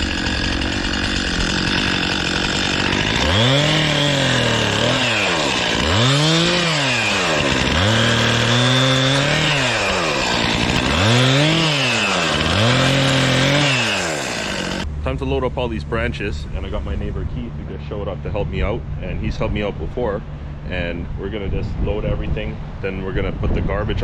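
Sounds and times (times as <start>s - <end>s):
chainsaw running and revving: 0.0s - 14.9s.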